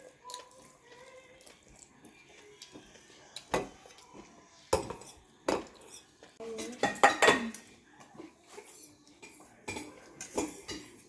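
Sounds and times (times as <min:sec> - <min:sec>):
dishes and cutlery clinking: 0:00.0 - 0:11.0.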